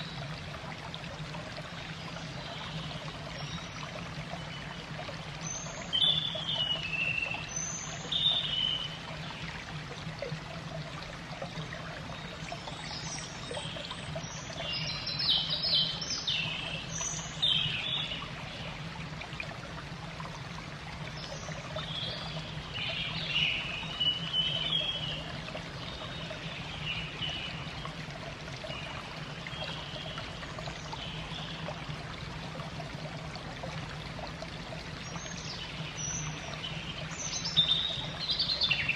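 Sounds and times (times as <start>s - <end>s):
running water trickling: 0.0s - 38.9s.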